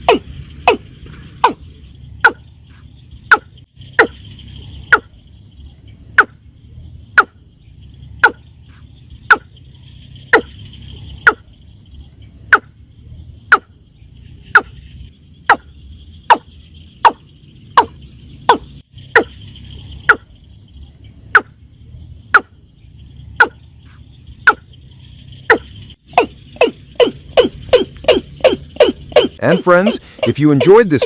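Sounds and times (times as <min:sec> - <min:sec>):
bird calling: 0:00.0 - 0:31.0
high insect buzz: 0:00.0 - 0:31.0.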